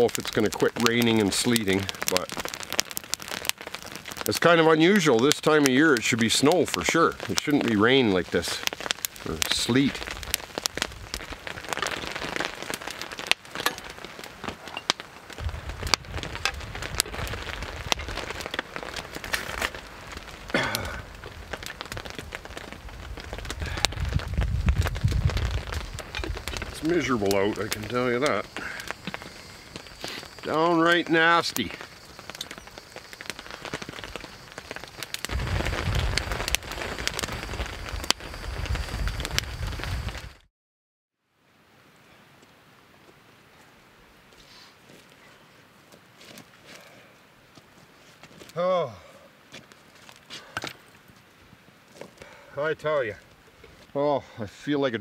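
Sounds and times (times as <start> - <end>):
campfire crackling: 0.0 - 40.5, 41.4 - 55.0
rain and sleet falling: 0.0 - 40.5, 41.4 - 55.0.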